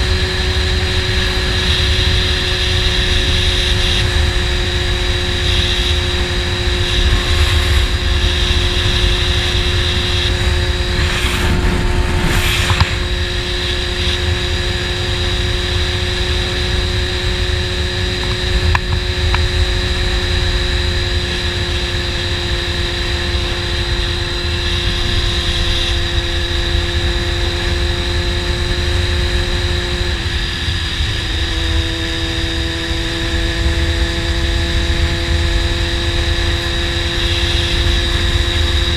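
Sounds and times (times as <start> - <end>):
motorcycle engine cruising: 0.0 - 38.9
wind rushing over microphone: 0.0 - 38.9.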